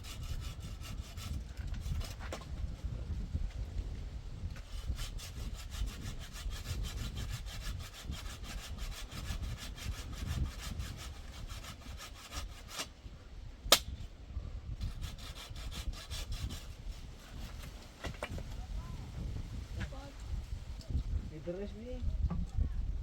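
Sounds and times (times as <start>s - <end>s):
hand saw cutting wood: 0.0s - 2.5s, 4.5s - 13.0s, 14.8s - 18.4s.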